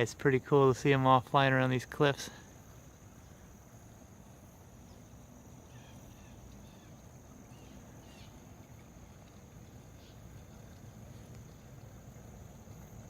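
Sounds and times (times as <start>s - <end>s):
high insect trill: 0.0s - 13.0s
faint bird chirps: 4.8s - 8.4s.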